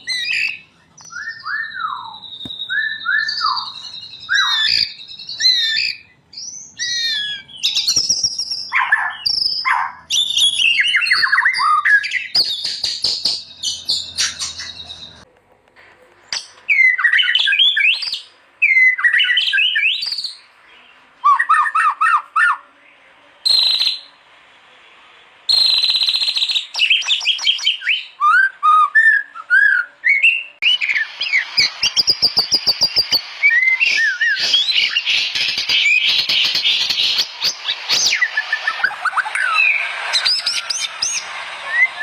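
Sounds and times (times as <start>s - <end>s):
bird singing whistled notes: 0.0s - 15.2s, 16.3s - 22.6s, 23.4s - 24.2s, 25.5s - 42.0s.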